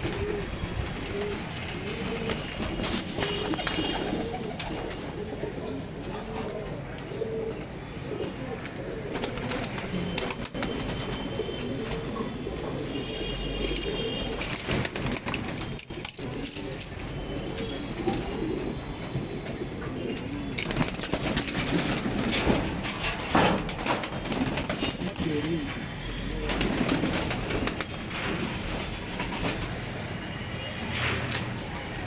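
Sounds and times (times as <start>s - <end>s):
pigeons cooing: 0.0s - 29.8s.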